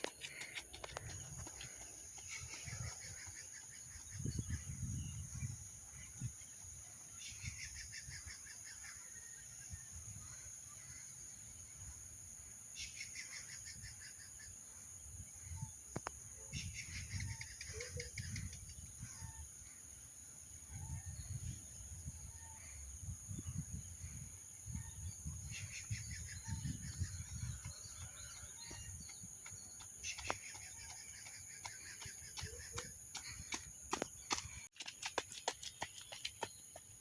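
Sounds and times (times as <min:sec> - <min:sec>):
birds chirping: 0:00.0 - 0:09.2, 0:24.9 - 0:37.0.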